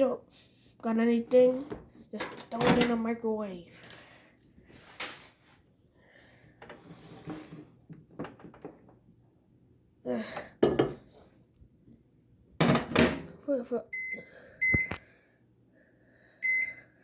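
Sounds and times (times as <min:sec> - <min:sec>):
bowl knocking and clattering: 0:10.6 - 0:11.1.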